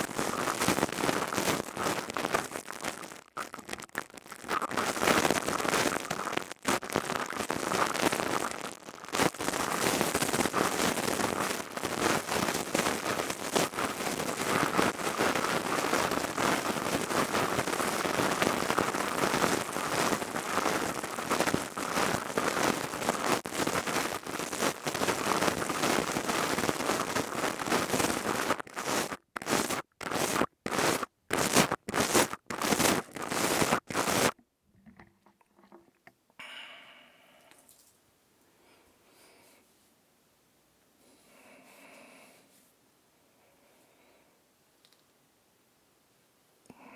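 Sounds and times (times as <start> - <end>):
crystal tubes crackling: 0.0 - 34.4.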